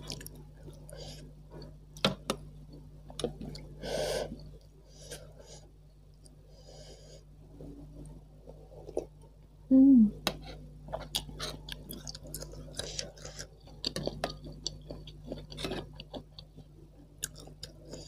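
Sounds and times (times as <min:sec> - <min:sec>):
chewing with wet mouth noises: 0:00.0 - 0:01.0, 0:10.9 - 0:18.0
person humming: 0:09.7 - 0:10.2.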